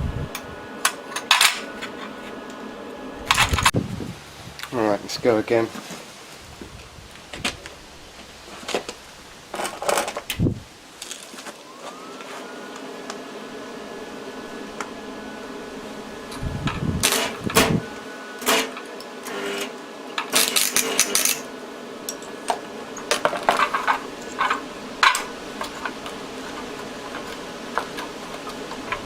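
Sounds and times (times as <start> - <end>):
steady background hum: 0.0 - 29.0
metal tools clinking: 0.9 - 2.3, 20.3 - 21.5, 22.1 - 29.0.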